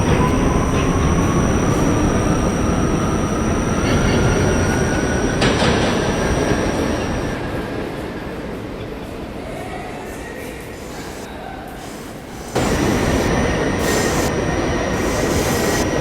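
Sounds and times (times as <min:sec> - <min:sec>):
subway train rumbling: 0:00.0 - 0:16.0
motor whine rising: 0:10.7 - 0:16.0
high-pitched ringing: 0:12.2 - 0:16.0.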